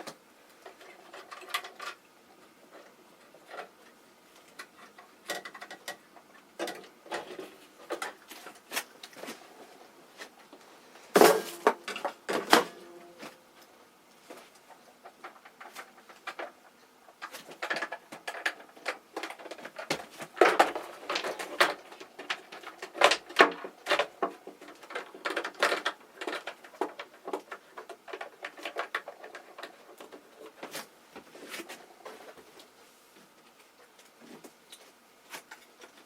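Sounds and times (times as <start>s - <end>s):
small hard objects clattering: 11.0s - 13.4s, 14.2s - 32.6s.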